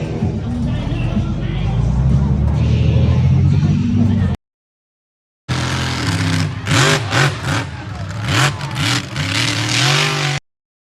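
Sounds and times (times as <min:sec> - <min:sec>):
monster truck engine revving: 0:05.5 - 0:10.4.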